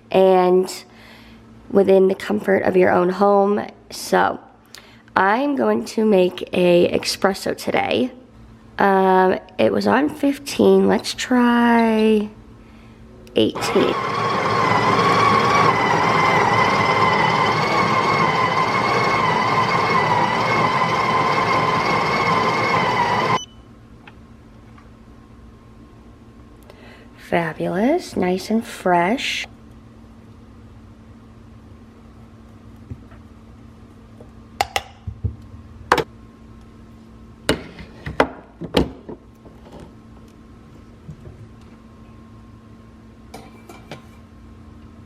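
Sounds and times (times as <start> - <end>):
coffee grinder motor whine: 13.5 - 23.4.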